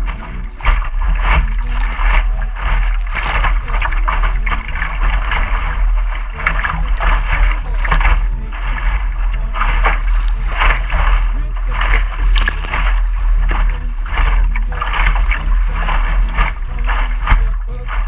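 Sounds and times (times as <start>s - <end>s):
steady low rumble: 0.0s - 18.0s
water splashing along boat hull: 0.0s - 18.0s.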